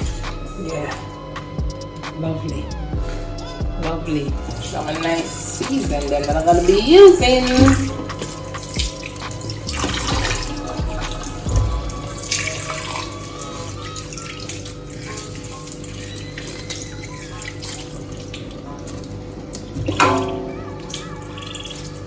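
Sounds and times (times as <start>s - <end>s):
quiet background music: 0.0s - 22.0s.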